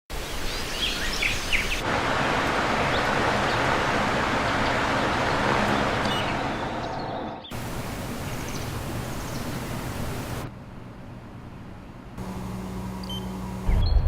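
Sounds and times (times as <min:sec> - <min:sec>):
outdoor hiss: 0:00.1 - 0:13.8
birds chirping: 0:00.2 - 0:10.4
steady rushing noise: 0:01.8 - 0:10.5.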